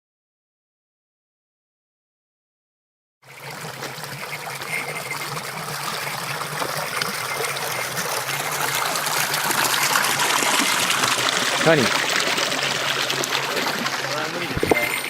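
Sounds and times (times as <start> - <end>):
stream water rushing: 3.3 - 15.0.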